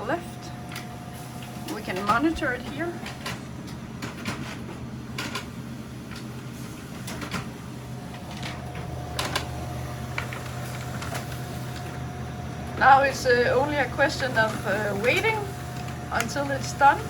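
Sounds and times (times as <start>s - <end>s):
laser printer humming: 0.0s - 17.0s
printer clicks: 8.2s - 9.5s.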